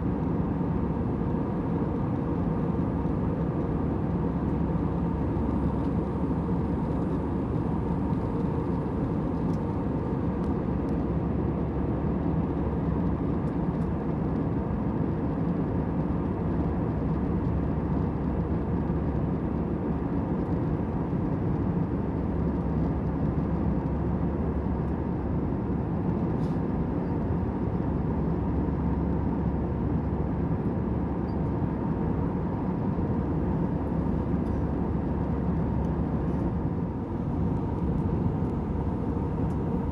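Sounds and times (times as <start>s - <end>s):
airliner cabin hum: 0.0s - 12.0s, 31.5s - 39.9s.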